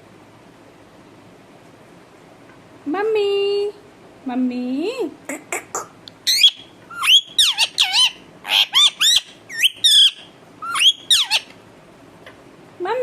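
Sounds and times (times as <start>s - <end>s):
parrot squawking: 5.3s - 11.6s.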